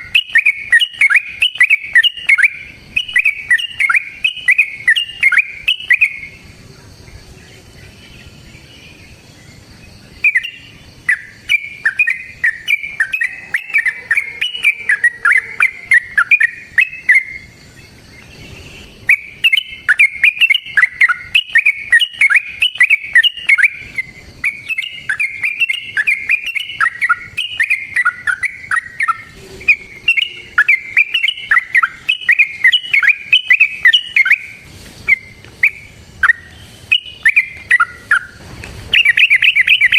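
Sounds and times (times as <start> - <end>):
bird singing bubbly chattering phrases: 0.0 - 39.9.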